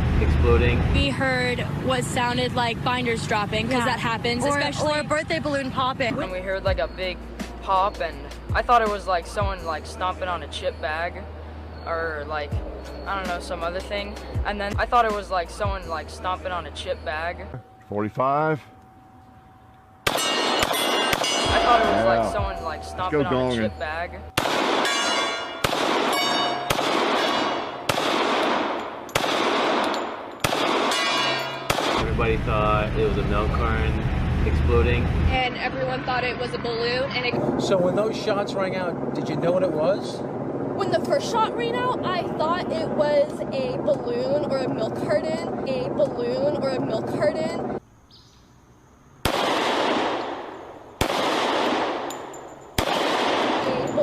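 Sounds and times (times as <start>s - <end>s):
gunshots: 20.0s - 21.9s, 24.4s - 32.2s, 49.2s - 52.1s, 52.8s - 53.9s
loud bangs with echo: 20.0s - 22.6s, 24.4s - 32.3s, 49.2s - 52.1s, 52.8s - 53.9s.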